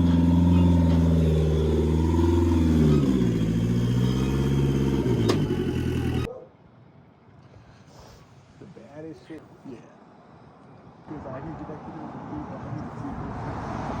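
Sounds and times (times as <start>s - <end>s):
turbocharged engine running: 0.0s - 6.3s.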